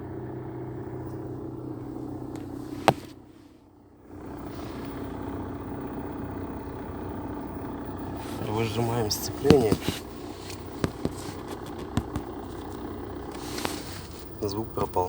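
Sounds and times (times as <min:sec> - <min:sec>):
car engine idling: 0:00.0 - 0:15.0
gearbox rattle: 0:04.2 - 0:15.0.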